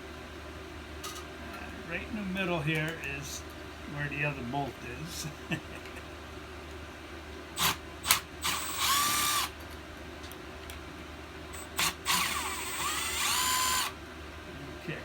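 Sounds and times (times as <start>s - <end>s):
power drill motor whine: 7.6s - 9.6s, 11.6s - 14.0s.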